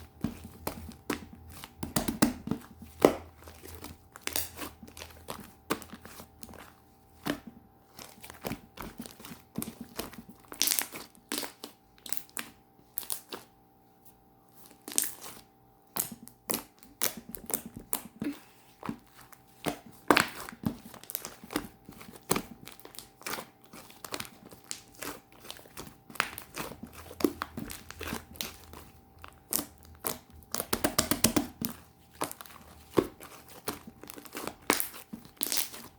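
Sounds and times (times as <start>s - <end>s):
slime crackling and popping: 8.0s - 13.4s, 14.8s - 15.4s, 19.6s - 35.9s.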